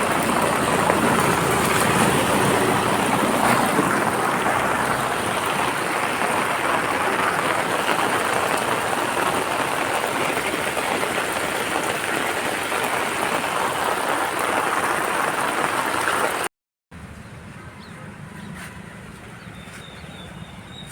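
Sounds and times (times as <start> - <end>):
heavy rain falling: 0.0 - 16.5.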